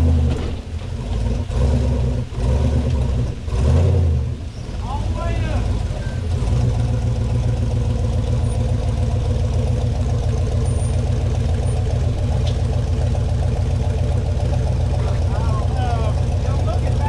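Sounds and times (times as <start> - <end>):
engine running at low revs: 0.0 - 17.0.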